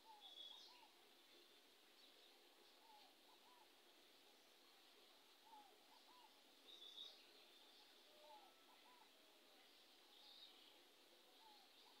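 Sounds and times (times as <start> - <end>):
faint bird calls: 0.0 - 1.0, 2.0 - 3.8, 5.3 - 12.0.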